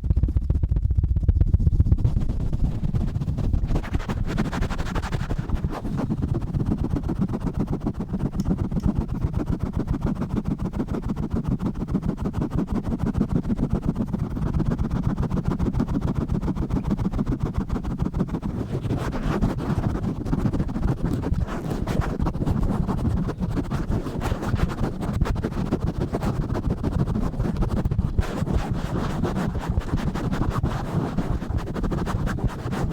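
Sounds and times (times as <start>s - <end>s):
rubbing on a microphone: 0.0s - 32.9s.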